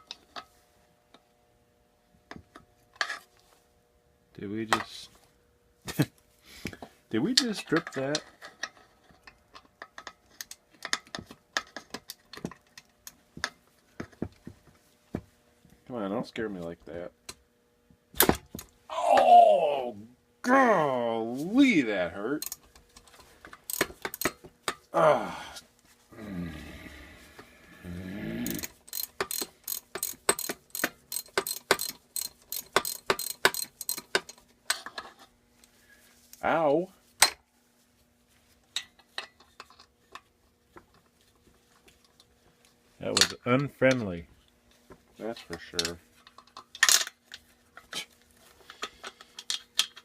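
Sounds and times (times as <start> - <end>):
person grunting: 18.9 - 20.9, 24.9 - 28.7
ratchet clicking: 22.4 - 22.6, 23.6 - 24.4, 28.4 - 34.4.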